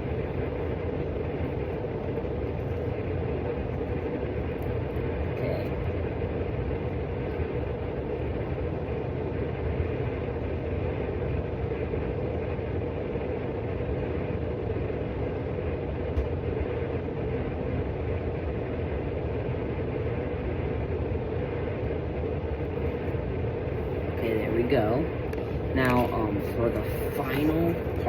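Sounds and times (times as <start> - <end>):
mechanical droning with low hum: 0.0 - 28.0.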